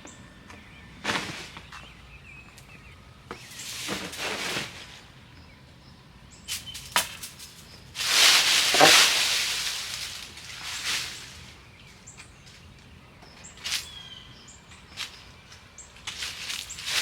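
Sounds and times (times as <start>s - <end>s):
dry leaves rustling: 3.5s - 5.2s, 6.5s - 12.8s, 13.5s - 17.0s.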